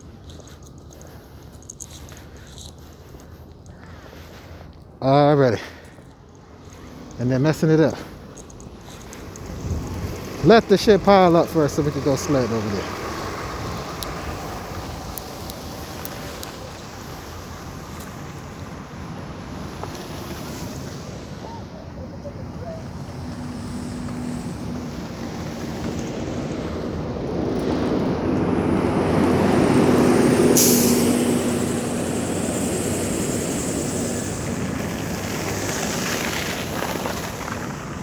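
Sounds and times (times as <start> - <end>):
heavy vehicle driving past: 8.8 - 19.8, 20.5 - 38.0
short high hiss: 30.4 - 36.2.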